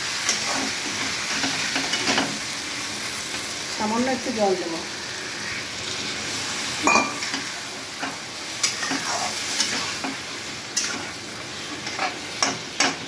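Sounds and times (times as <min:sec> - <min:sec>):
fish sizzling in a wok: 0:00.0 - 0:13.0
metal spatula scraping a pan: 0:06.8 - 0:10.2.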